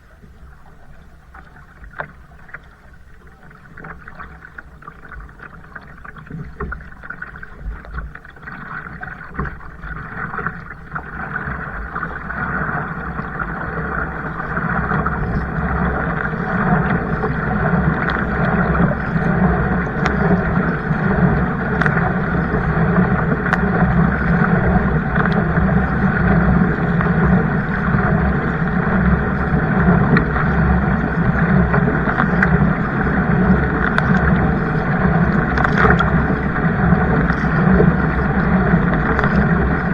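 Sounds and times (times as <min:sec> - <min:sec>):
water splashing along kayak: 0:00.0 - 0:39.9.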